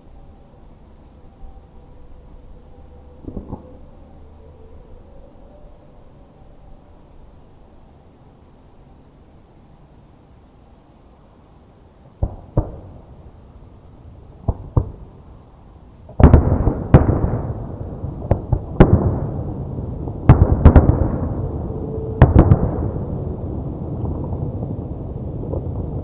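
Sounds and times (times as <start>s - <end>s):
continuous rumble: 0.0s - 26.0s
fireworks bursting: 12.2s - 13.6s, 16.0s - 26.0s.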